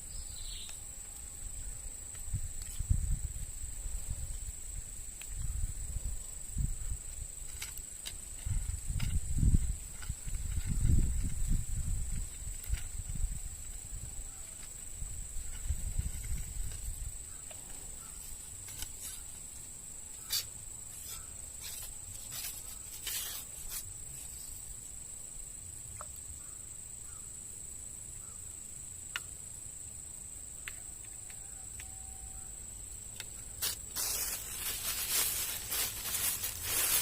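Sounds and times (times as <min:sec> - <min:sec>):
outdoor background noise: 0:00.0 - 0:37.0
rustling: 0:20.2 - 0:24.6, 0:33.6 - 0:37.0.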